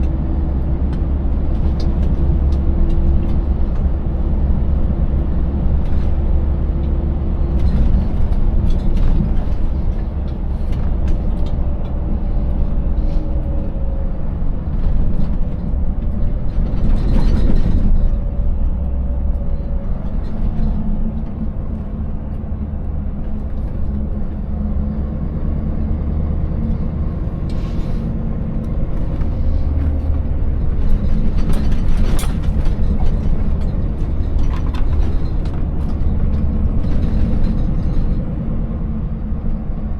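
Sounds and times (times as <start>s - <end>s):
truck and trailer rattling: 0.0s - 39.9s
truck engine running: 0.0s - 39.9s.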